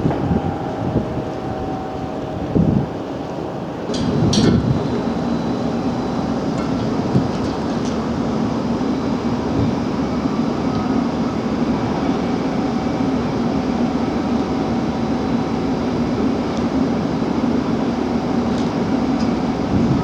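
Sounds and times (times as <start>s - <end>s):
ship machinery rumbling: 0.0s - 12.8s.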